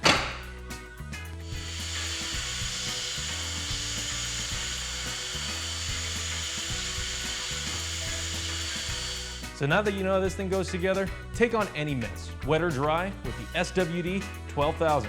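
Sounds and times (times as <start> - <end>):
background music with bass: 0.0 - 15.0
shop vacuum running: 1.4 - 9.5.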